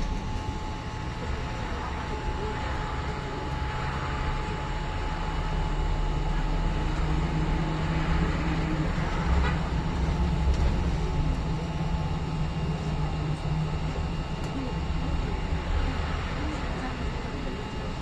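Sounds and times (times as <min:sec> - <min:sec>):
bus engine humming: 0:00.0 - 0:18.0
low road rumble: 0:00.0 - 0:18.0.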